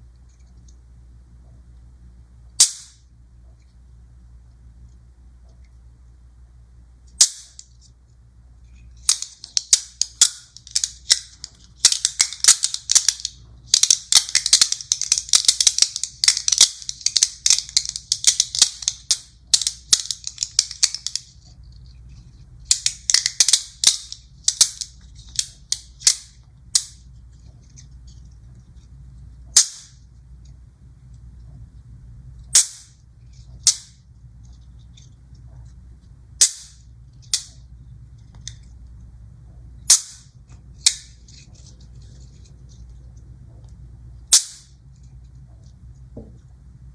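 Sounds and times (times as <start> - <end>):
magnetic balls clicking together: 8.8 - 31.7, 32.3 - 38.7, 39.9 - 46.5.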